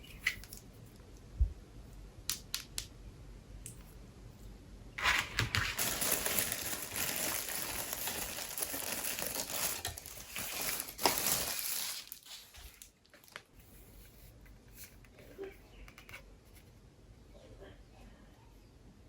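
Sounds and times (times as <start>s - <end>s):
plastic packaging crinkling: 5.0s - 13.6s.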